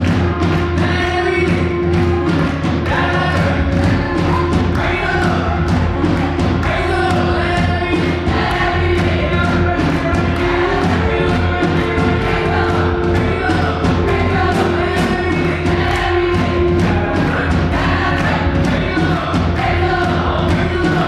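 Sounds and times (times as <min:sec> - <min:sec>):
band with heavy bass: 0:00.0 - 0:21.0
driving drum beat: 0:00.0 - 0:21.0
group of voices singing: 0:00.0 - 0:21.0.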